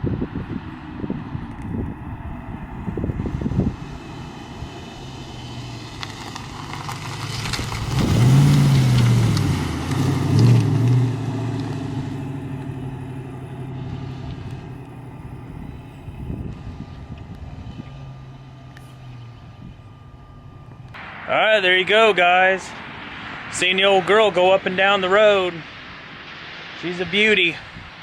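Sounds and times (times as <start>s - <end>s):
car engine driving past: 1.7s - 28.0s.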